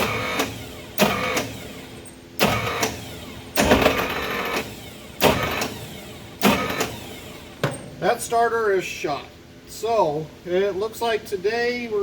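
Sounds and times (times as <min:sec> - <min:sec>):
starter motor cranking: 0:00.0 - 0:07.6.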